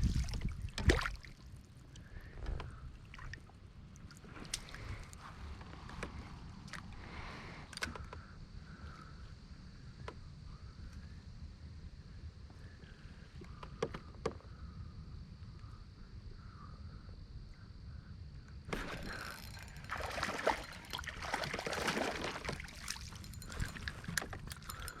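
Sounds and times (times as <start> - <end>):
water sloshing around kayak: 0.0 - 6.9, 18.7 - 25.0
low rumble of wind: 0.0 - 25.0.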